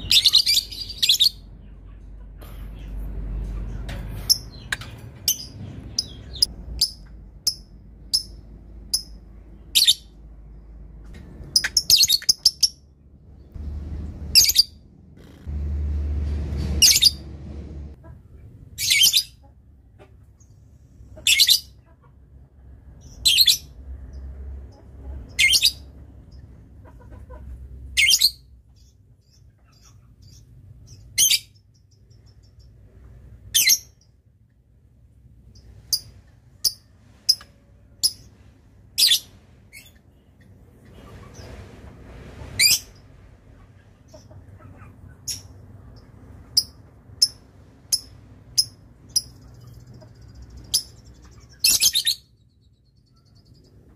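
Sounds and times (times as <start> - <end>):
lovebird chirping: 0.0 - 1.8, 4.2 - 10.2, 11.5 - 12.9, 14.3 - 14.8, 45.1 - 53.9.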